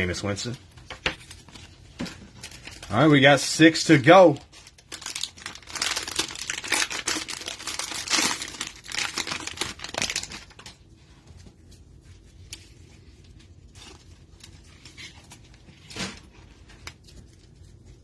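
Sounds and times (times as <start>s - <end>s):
cellophane wrapper crinkling and tearing: 1.2s - 10.9s.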